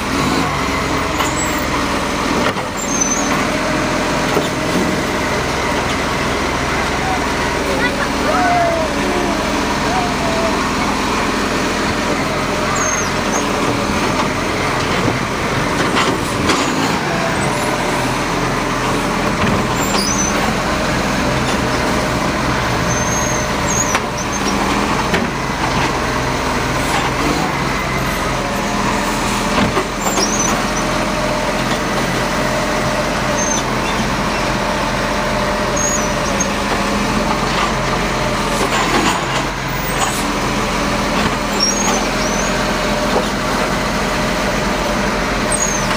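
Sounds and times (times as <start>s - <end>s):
garbage truck engine running: 0.0s - 45.9s
short high squeaks: 2.8s - 3.4s, 12.8s - 13.5s, 22.9s - 24.5s, 35.8s - 36.5s, 41.5s - 42.6s.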